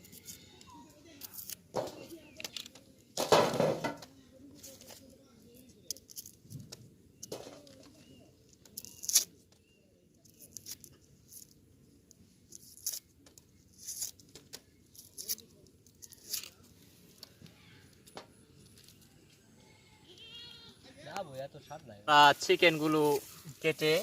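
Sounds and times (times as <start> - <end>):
onion skins crackling and tearing: 0.0 - 2.8, 4.6 - 9.6, 10.2 - 11.6, 12.4 - 17.4.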